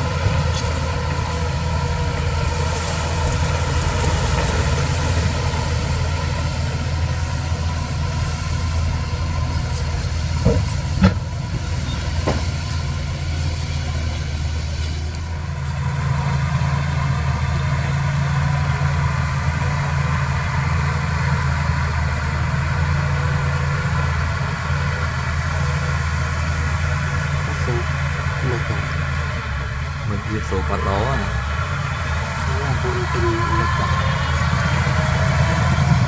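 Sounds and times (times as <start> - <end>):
heavy diesel engine running: 0.0 - 36.0.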